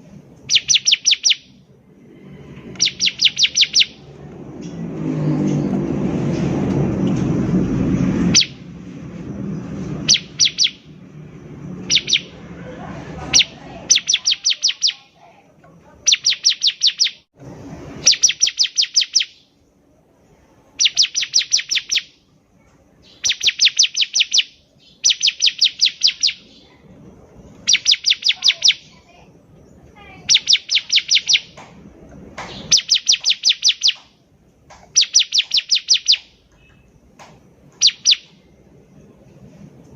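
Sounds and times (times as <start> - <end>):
bird singing high chipping notes: 0.4 - 1.7, 2.7 - 4.8, 7.8 - 8.8, 9.6 - 12.4, 13.4 - 15.1, 16.1 - 17.3, 18.0 - 19.6, 20.8 - 22.3, 23.0 - 26.7, 27.3 - 31.6, 32.4 - 34.2, 34.9 - 37.0, 37.7 - 39.1
loud low rumble: 1.5 - 14.2, 26.4 - 27.8.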